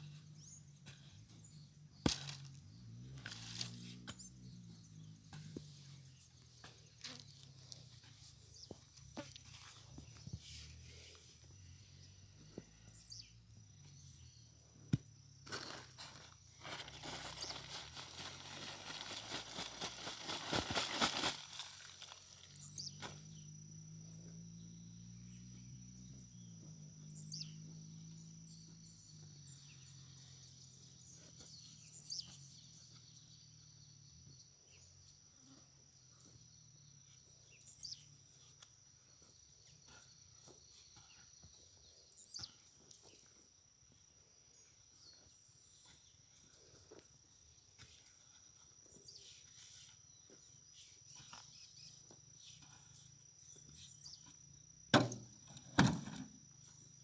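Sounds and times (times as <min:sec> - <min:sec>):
high insect drone: 0:15.2 - 0:57.0.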